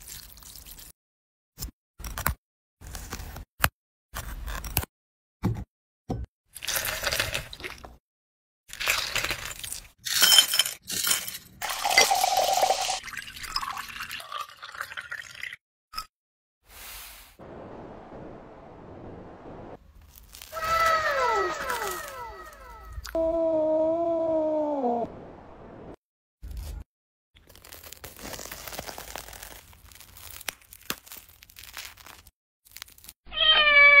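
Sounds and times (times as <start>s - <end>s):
ice clinking into glass: 10.1s - 15.6s
liquid pouring over ice: 11.6s - 15.6s
toasted sandwich crunching: 27.4s - 33.1s
cat meowing: 33.3s - 34.0s.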